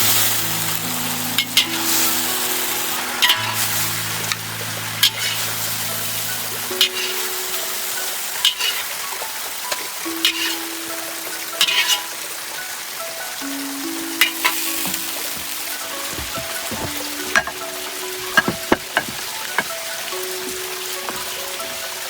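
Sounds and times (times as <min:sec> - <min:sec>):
food sizzling in a pan: 0:00.0 - 0:22.0
utensil knocking in pan: 0:14.2 - 0:19.9, 0:20.5 - 0:21.4.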